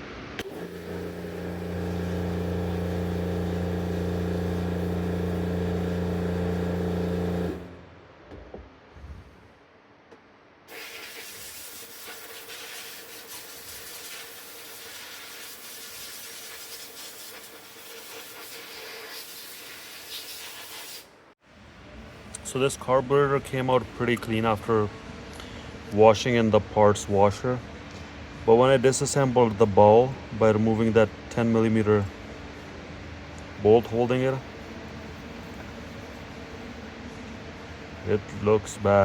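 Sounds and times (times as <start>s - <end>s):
loud machine hum: 0.4s - 8.0s
spraying hiss: 10.7s - 21.1s.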